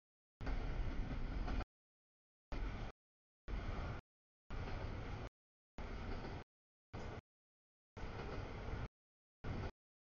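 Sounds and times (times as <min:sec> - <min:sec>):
train rolling noise: 0:00.4 - 0:01.7, 0:02.5 - 0:07.2, 0:08.0 - 0:09.8.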